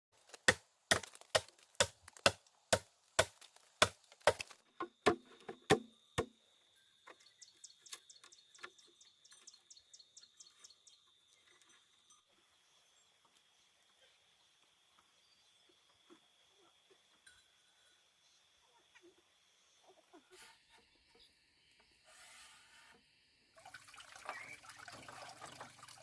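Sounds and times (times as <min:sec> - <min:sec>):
tool striking wood: 0:00.4 - 0:06.3.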